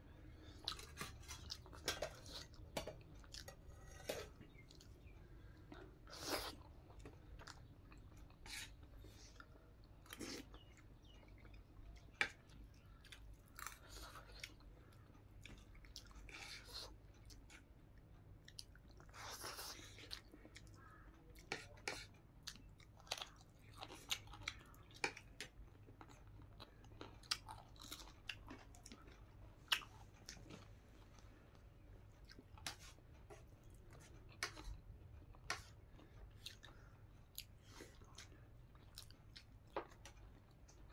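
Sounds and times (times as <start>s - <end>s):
person chewing food: 0.2s - 40.9s.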